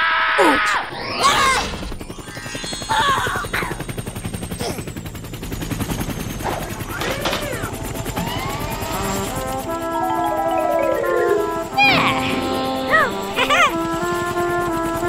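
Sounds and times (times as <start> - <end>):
cartoon helicopter rotor chopping: 0.4 - 15.0
swooping glides: 6.4 - 14.4
music with stepped notes: 7.7 - 14.7.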